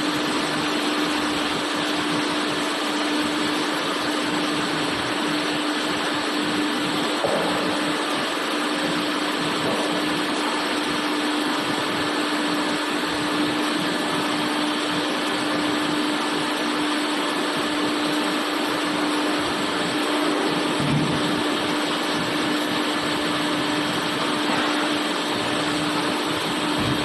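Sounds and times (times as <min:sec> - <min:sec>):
machinery whirring and humming: 0:00.0 - 0:27.0.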